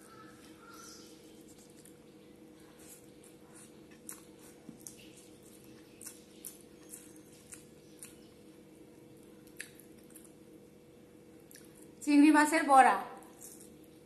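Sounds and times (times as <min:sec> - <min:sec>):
faint steady hum: 0:00.0 - 0:14.0
chewing with wet lip smacks: 0:01.4 - 0:10.4, 0:11.4 - 0:12.0.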